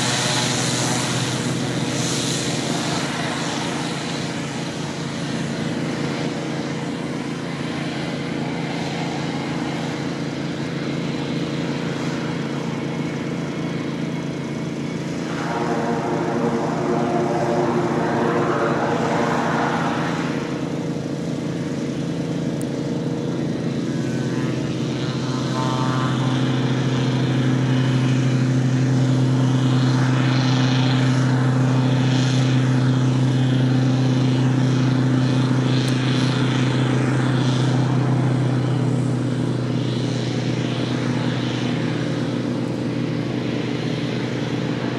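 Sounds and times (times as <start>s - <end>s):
turboprop plane engine drone: 0.0s - 44.9s
rushing noise: 13.6s - 29.9s.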